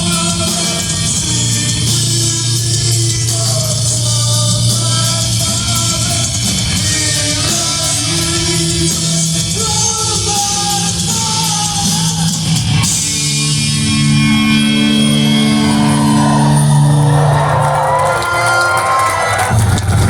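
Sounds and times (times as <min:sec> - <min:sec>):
person singing: 0:00.0 - 0:14.6
distorted electric guitars: 0:00.0 - 0:20.0
drums with crashing cymbals: 0:00.0 - 0:20.0.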